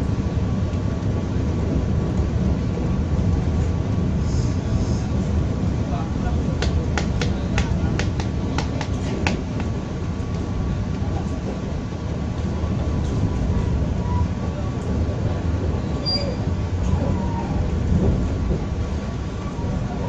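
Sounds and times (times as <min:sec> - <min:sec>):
train carriage rumbling on track: 0:00.0 - 0:20.0.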